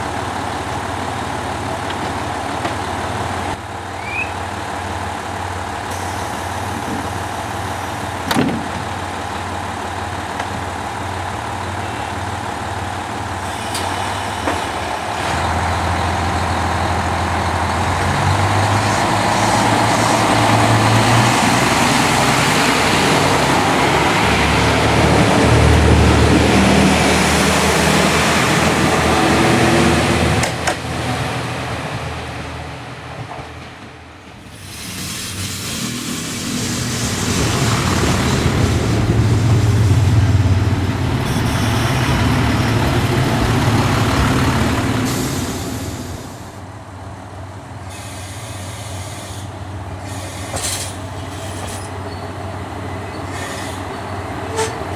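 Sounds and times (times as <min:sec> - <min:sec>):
diesel railcar engine: 0:00.0 - 0:54.9
short sharp clunks: 0:08.3 - 0:08.9.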